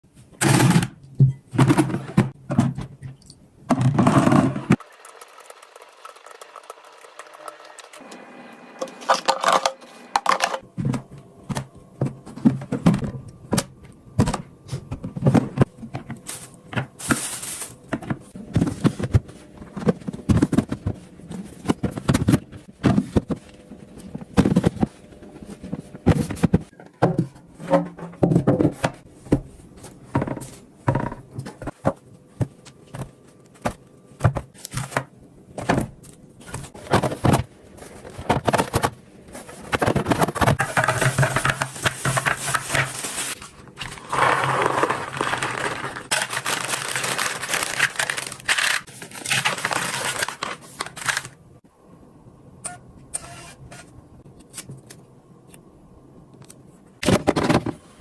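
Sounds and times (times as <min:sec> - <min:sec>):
items knocking and scraping: 0:00.2 - 0:08.0, 0:08.8 - 0:51.3, 0:57.0 - 0:58.0
crinkling and rustling: 0:09.1 - 0:51.4.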